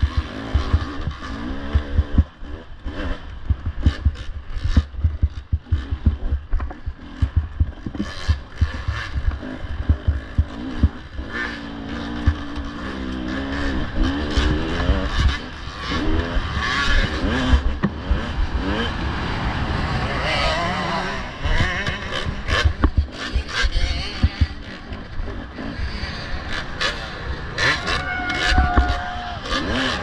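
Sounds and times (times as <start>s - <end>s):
low knocks and rumble: 0.0s - 2.4s, 3.4s - 11.0s
dirt bike engine revving: 0.0s - 30.0s.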